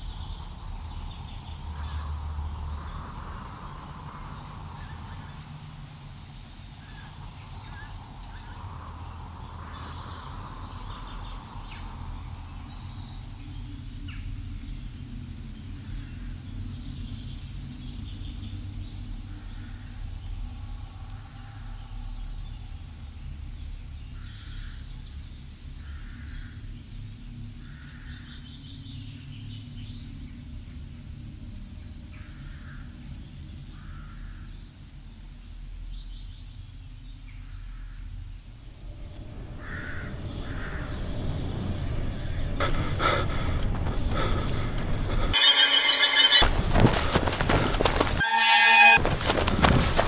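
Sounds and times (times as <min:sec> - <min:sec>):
low rumble: 0:38.3 - 0:45.4
broad noise: 0:42.6 - 0:50.0
short bird calls: 0:42.6 - 0:50.0.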